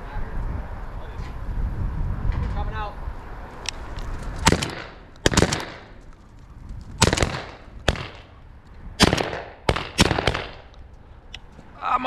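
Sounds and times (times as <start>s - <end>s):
shotgun shots echoing: 4.4s - 6.0s, 7.0s - 8.4s, 9.0s - 10.7s.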